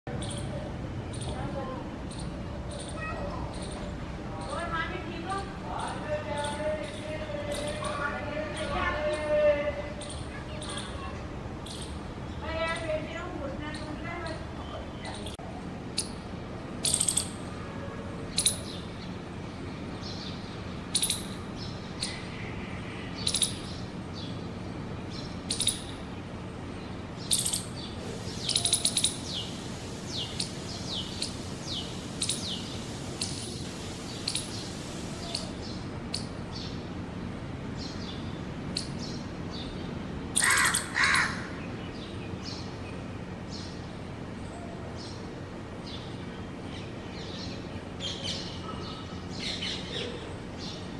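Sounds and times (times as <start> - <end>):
small birds chirping: 0.1 - 17.5, 18.3 - 50.9.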